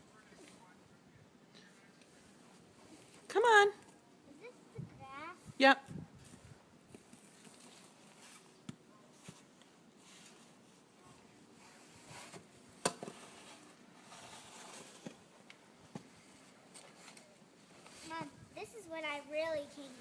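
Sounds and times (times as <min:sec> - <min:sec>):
soft hiss: 0:00.0 - 0:20.0
snow shovel scraping snow: 0:13.1 - 0:15.1.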